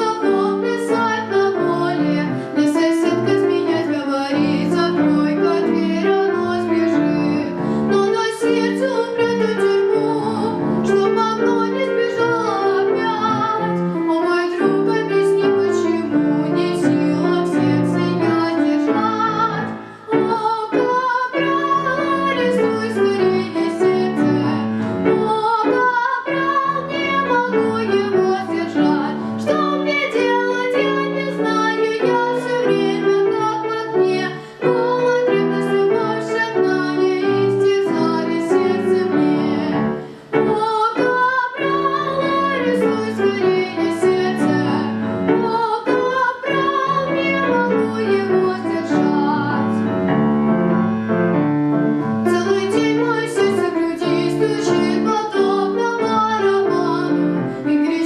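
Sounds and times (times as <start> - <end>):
high voice singing with vibrato: 0.0 - 49.8, 52.3 - 58.0
piano accompaniment: 0.0 - 58.0.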